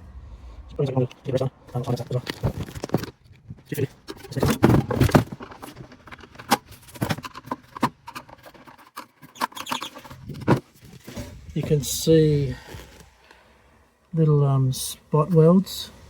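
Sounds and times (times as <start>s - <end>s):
metal parts scraping and rattling: 1.7s - 13.0s.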